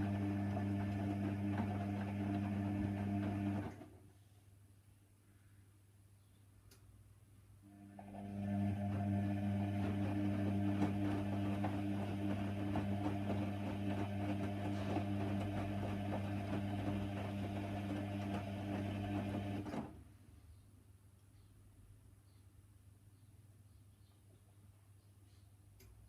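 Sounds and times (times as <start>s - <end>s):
washer dryer humming and rattling: 0.0s - 3.9s, 7.9s - 20.0s.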